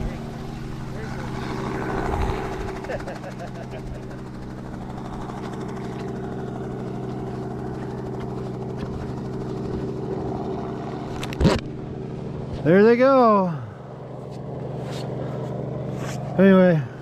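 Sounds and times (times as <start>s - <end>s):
snowmobile engine running: 0.0s - 17.0s.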